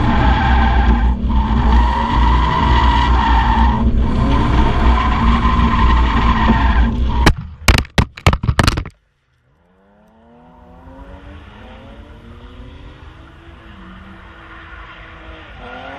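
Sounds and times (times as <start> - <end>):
car engine at high revs: 0.0 - 7.2, 9.5 - 15.9
tyre noise while drifting: 0.0 - 9.0
sharp cracks and knocks: 7.2 - 9.3.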